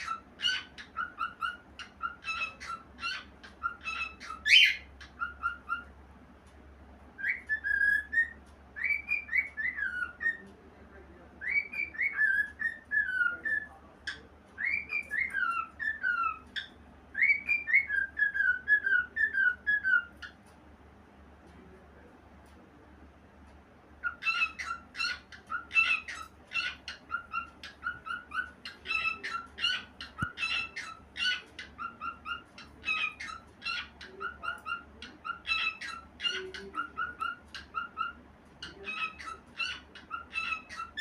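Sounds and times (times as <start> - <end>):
cockatiel whistled chirps: 0.0 - 5.9, 7.2 - 10.4, 11.4 - 13.7, 14.6 - 20.3.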